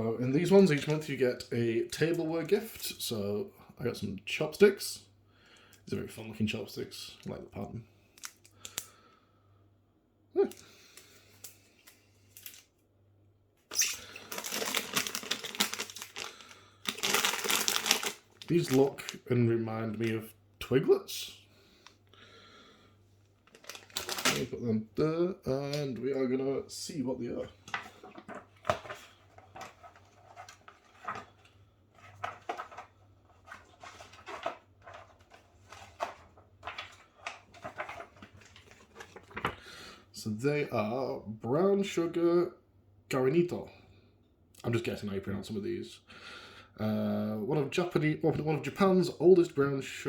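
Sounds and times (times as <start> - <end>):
packaging crinkling: 0.4 - 1.1, 11.4 - 12.7, 13.7 - 19.3, 23.4 - 24.6, 27.6 - 39.7
snack packaging crinkling: 0.4 - 1.1, 11.0 - 12.7, 13.7 - 19.3, 23.4 - 24.6.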